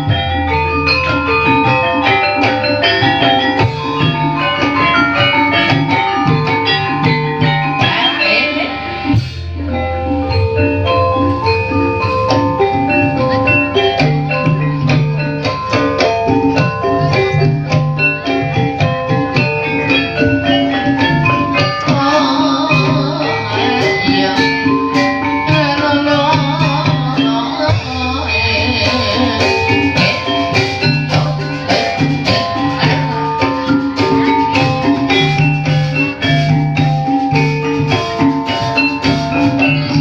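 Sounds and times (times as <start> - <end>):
drum strokes: 0.0 - 40.0
tuned percussion melodies: 0.0 - 40.0
wavering singing voice: 20.7 - 36.2.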